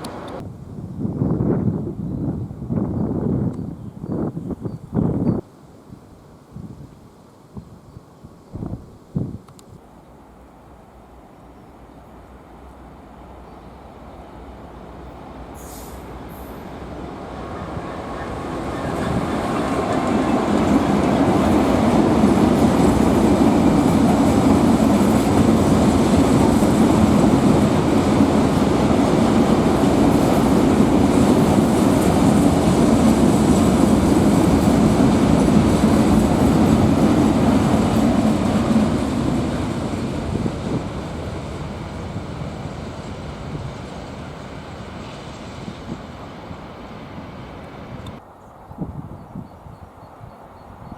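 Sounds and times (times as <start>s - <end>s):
train passing: 0.0s - 0.4s, 10.1s - 48.4s.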